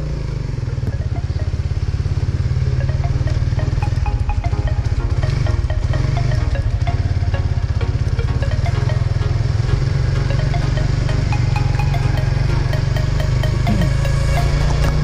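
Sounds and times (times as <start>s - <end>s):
motorcycle engine running: 0.0s - 15.0s
background music: 0.6s - 15.0s.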